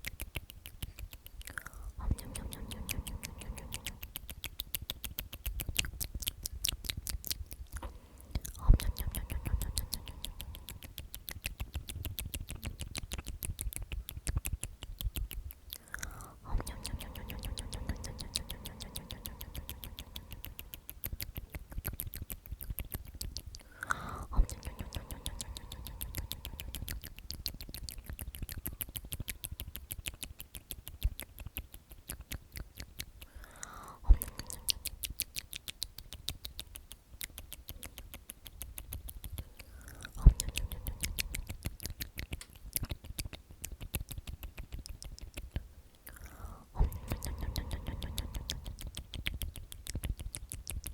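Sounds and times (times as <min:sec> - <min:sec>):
tongue and lip clicks: 0:00.0 - 0:50.9
whispered sound: 0:00.8 - 0:14.6, 0:15.2 - 0:28.1, 0:39.3 - 0:42.6, 0:46.1 - 0:49.5.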